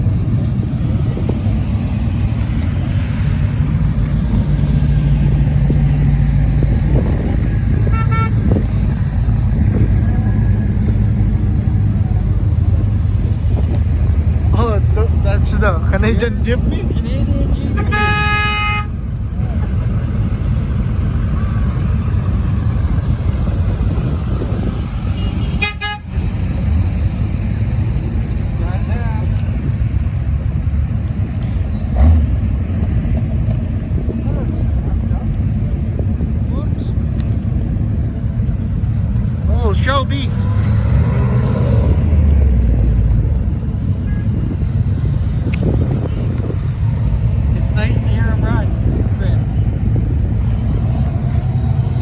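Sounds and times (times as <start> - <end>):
vehicles rumbling: 0.0 - 52.0
car horn toot: 7.8 - 8.6, 17.6 - 19.0, 25.1 - 26.2.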